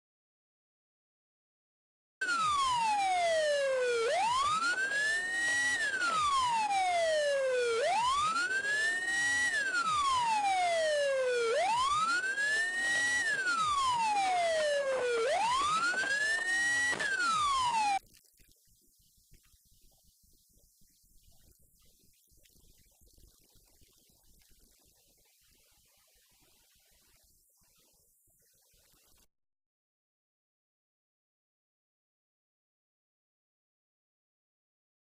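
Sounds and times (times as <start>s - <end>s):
emergency siren wailing: 2.2s - 18.0s.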